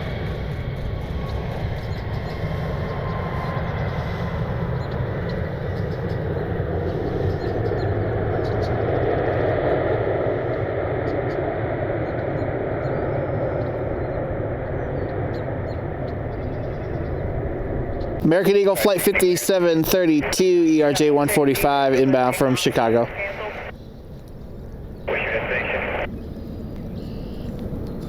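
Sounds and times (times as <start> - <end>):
jet engine rumble: 0.0 - 28.0
faint high whine: 18.0 - 27.7.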